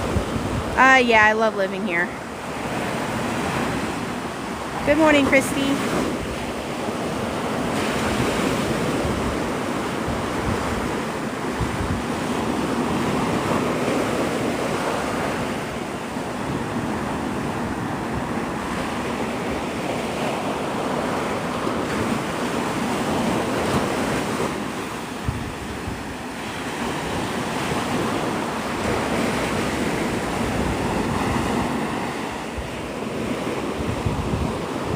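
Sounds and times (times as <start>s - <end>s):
surf breaking on beach: 0.0s - 34.9s
wind buffeting microphone: 0.0s - 34.9s.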